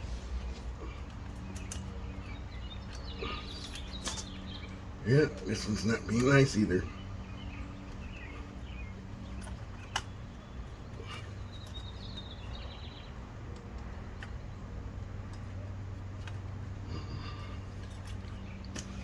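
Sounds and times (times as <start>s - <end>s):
faint bird chirps: 0.0s - 13.2s
steady low hum: 0.0s - 19.0s.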